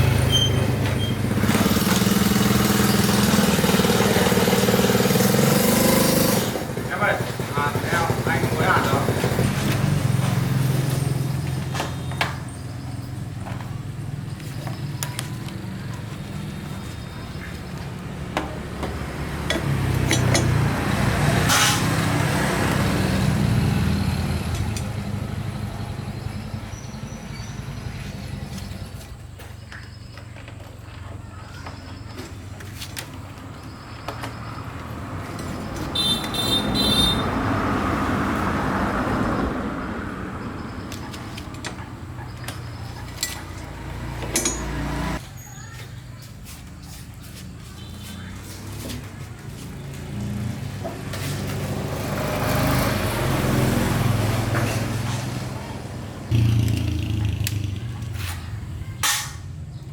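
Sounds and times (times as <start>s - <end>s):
vehicle engine running: 0.0s - 59.9s
scattered clicks and knocks: 18.3s - 20.7s.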